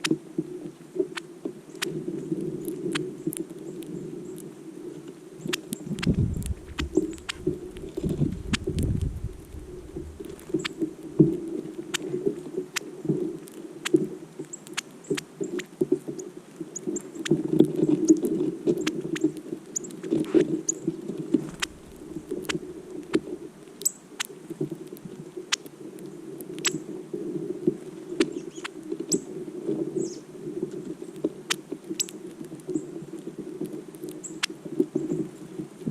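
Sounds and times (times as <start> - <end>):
birds chipping: 5.6 - 10.8
low background rumble: 5.8 - 11.4, 21.2 - 23.7.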